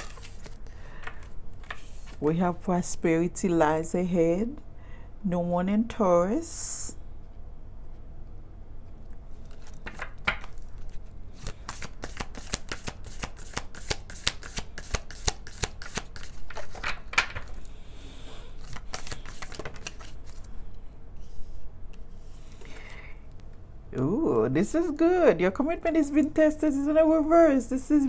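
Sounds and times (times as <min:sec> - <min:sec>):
cards being shuffled: 0:00.0 - 0:02.2, 0:09.3 - 0:17.7, 0:18.6 - 0:20.6.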